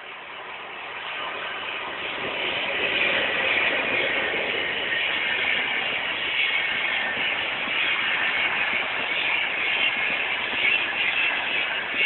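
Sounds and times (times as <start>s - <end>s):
train running: 0.0s - 12.0s.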